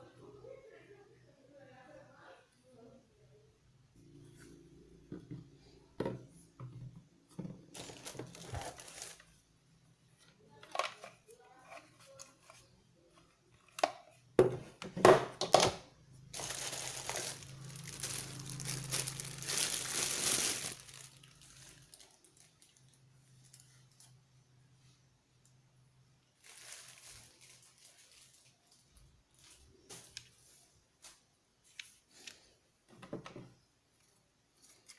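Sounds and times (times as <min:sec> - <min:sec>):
rustling: 0:07.6 - 0:09.4, 0:16.3 - 0:24.2, 0:26.4 - 0:32.5
packaging crinkling and tearing: 0:07.7 - 0:09.3, 0:16.3 - 0:24.1, 0:26.4 - 0:28.6.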